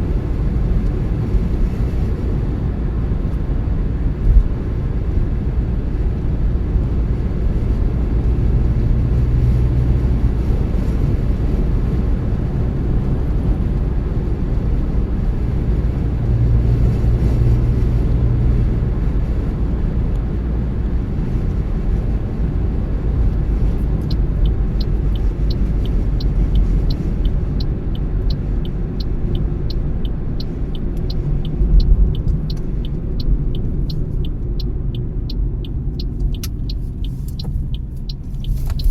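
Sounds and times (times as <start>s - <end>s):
car tyres and engine rumbling: 0.0s - 38.9s
turn signal ticking: 22.8s - 38.9s.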